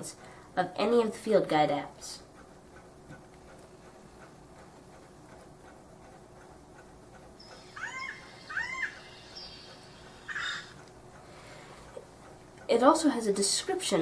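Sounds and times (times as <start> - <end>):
bird calls through device speaker: 7.7 - 10.8.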